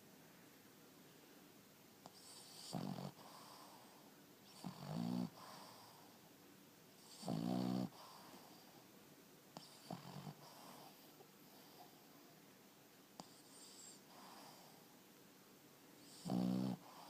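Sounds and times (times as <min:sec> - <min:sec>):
dog snoring rasping: 0:02.1 - 0:06.1, 0:07.0 - 0:08.7, 0:09.6 - 0:11.8, 0:13.2 - 0:14.8, 0:16.0 - 0:17.0.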